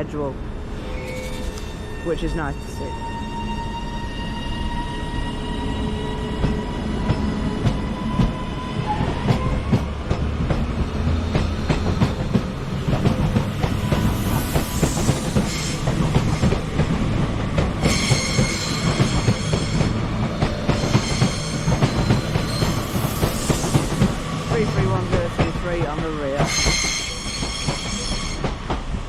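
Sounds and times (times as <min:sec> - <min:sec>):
steady train whine: 0:00.0 - 0:29.0
high-pitched wheel squeal: 0:00.8 - 0:06.8, 0:20.8 - 0:23.7, 0:26.5 - 0:28.4
train wheels clattering over rail joints: 0:09.2 - 0:29.0.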